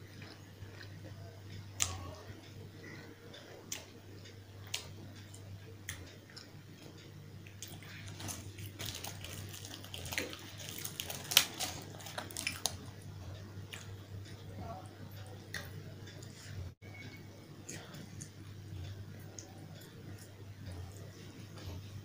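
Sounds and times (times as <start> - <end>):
steady low hum: 0.0 - 22.0
fried bread crackling: 7.5 - 14.0.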